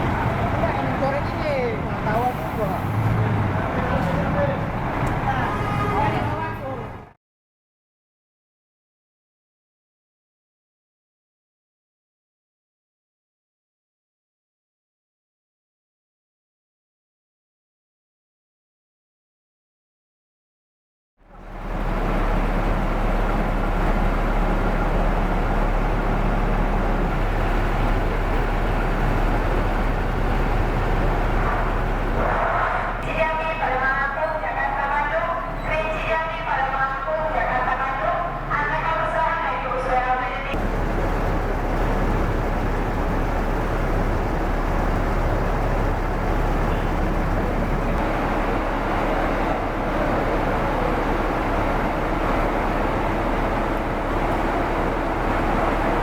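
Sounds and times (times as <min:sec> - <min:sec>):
coach engine hum and road noise: 0:00.0 - 0:07.2, 0:21.2 - 0:56.0.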